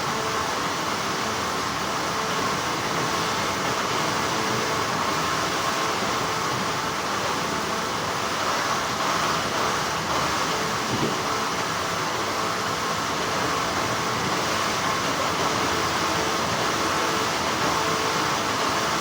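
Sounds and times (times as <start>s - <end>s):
factory machinery humming: 0.0s - 19.0s.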